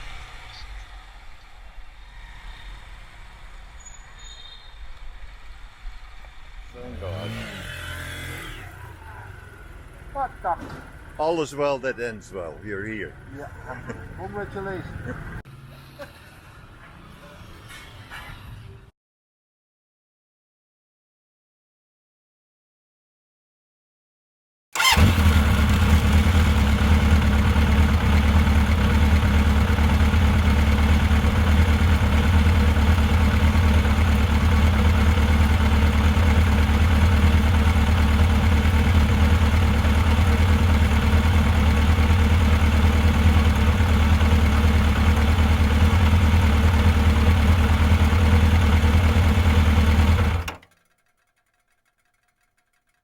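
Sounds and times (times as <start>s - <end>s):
motorcycle engine idling: 24.8s - 53.0s.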